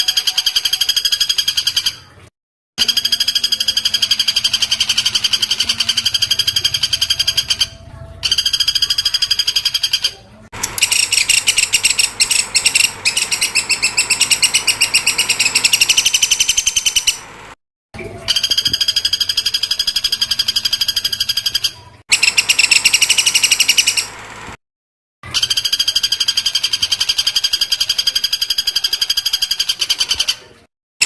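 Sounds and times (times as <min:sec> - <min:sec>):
songbird calling rapid high notes: 0:10.8 - 0:17.3.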